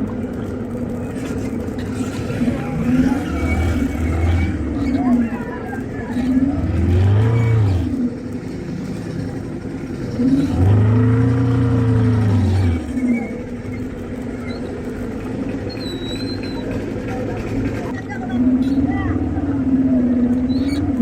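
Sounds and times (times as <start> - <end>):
steady background noise: 0.0 - 21.0
vehicle engine revving: 1.1 - 14.2.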